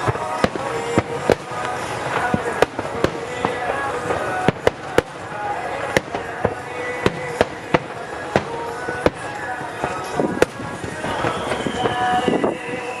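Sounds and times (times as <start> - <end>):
firework shells bursting: 0.0 - 13.0
rumbling crackling background: 0.0 - 13.0
high whistle dropping in pitch: 11.0 - 13.0.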